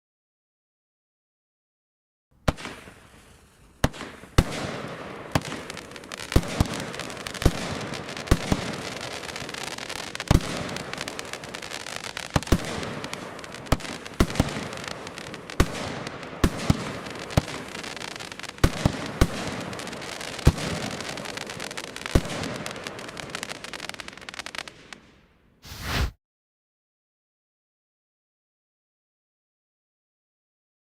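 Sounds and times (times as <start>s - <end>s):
firework bangs: 2.4s - 24.9s
firework crackle and fizz: 2.5s - 26.1s.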